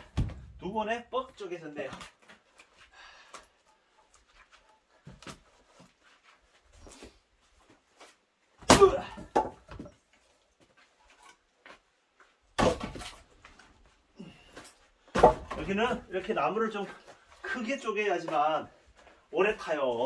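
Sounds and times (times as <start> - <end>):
axe striking firewood: 0.0 - 0.8, 8.6 - 9.6, 12.6 - 13.2, 15.1 - 16.0.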